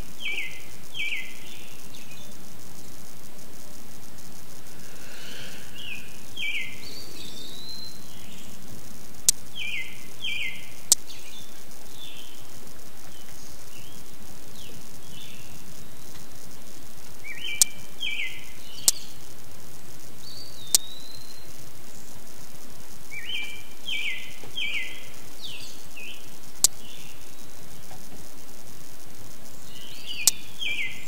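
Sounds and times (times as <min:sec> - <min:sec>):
birds chirping: 0:00.0 - 0:02.9, 0:04.4 - 0:16.2, 0:17.2 - 0:19.2, 0:23.1 - 0:27.9, 0:29.5 - 0:31.0
steady outdoor hiss: 0:00.0 - 0:31.0
sharp clicks: 0:17.5 - 0:17.8.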